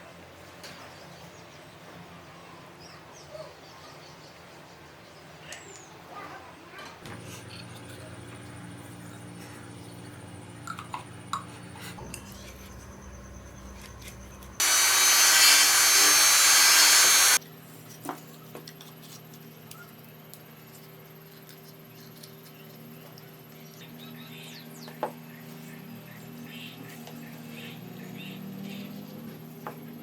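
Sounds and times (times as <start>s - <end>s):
handheld power tool running: 13.9s - 17.4s.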